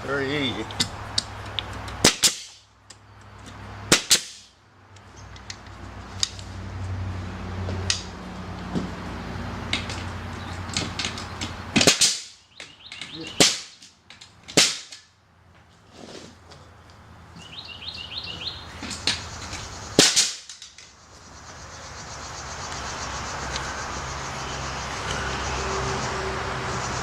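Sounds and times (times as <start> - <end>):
pneumatic nailer firing into wood: 2.0 - 2.6, 3.9 - 4.5, 11.8 - 12.4, 13.4 - 13.9, 14.5 - 15.0, 20.0 - 20.6.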